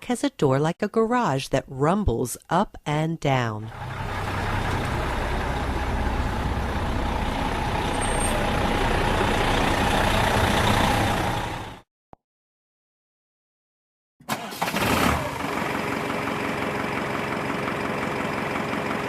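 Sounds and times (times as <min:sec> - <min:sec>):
truck rumble: 0:03.6 - 0:11.8, 0:14.4 - 0:19.0.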